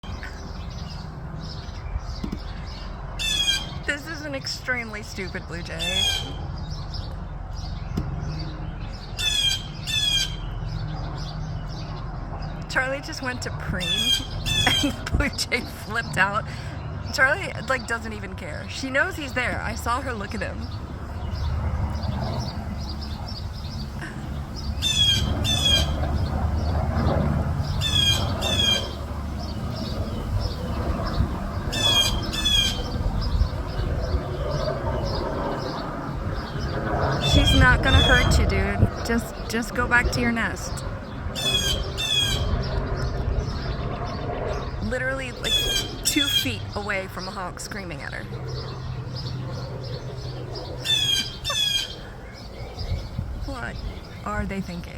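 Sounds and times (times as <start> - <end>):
blue jay harsh jeering calls: 0.0 - 21.5, 22.4 - 26.8, 27.5 - 35.8, 36.4 - 54.3
jay squawking calls: 3.2 - 4.1, 5.8 - 6.4, 9.2 - 10.5, 13.8 - 15.0, 24.8 - 26.0, 27.8 - 29.0, 31.7 - 32.9, 41.4 - 42.5, 45.4 - 46.7, 50.8 - 52.0.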